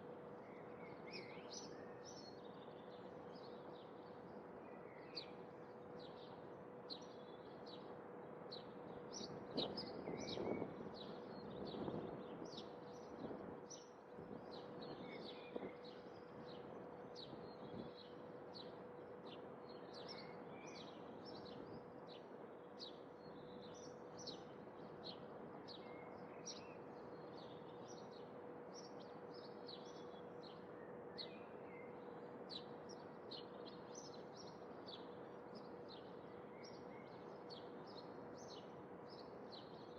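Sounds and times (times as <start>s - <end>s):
small birds chirping: 22.8s - 39.9s.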